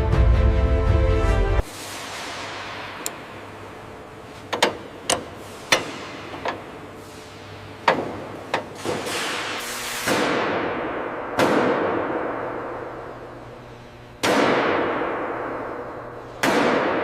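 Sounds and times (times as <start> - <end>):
hammer strikes on metal: 4.5 - 6.6.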